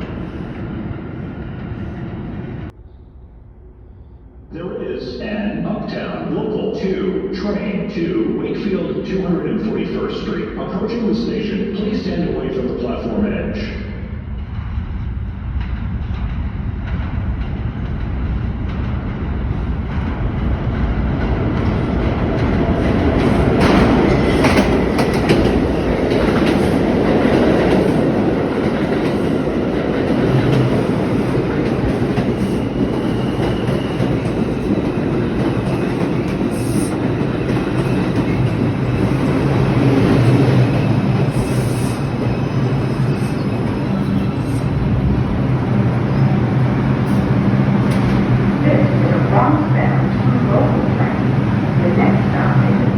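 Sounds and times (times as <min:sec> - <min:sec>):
subway train wheels rumbling on rails: 0:00.0 - 0:52.9.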